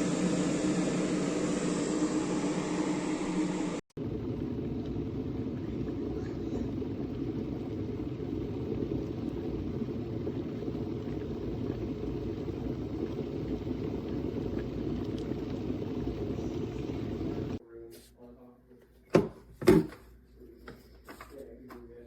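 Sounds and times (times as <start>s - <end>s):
electric kettle heating water: 0.0s - 17.6s.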